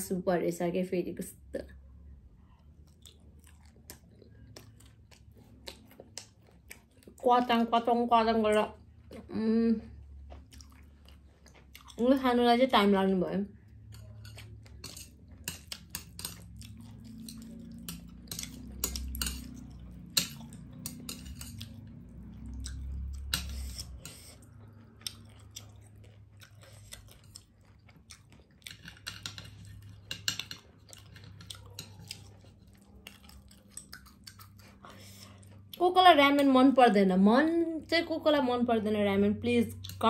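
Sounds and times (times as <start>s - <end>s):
chewing noodles: 2.4s - 7.2s, 10.0s - 12.0s, 13.7s - 35.8s.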